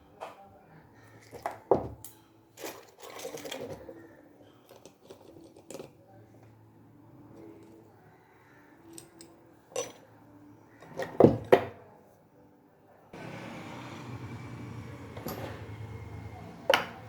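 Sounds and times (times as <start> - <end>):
metal tools clicking and clinking: 1.2 - 3.9, 8.9 - 10.1.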